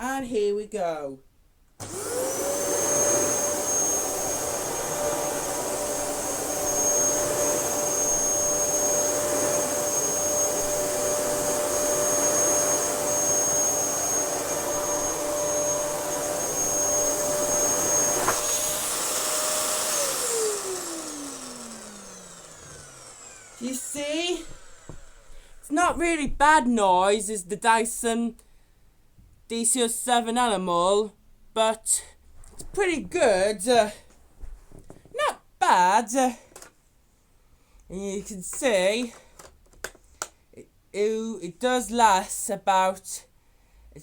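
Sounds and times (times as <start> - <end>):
vacuum cleaner motor whining: 1.8 - 26.0.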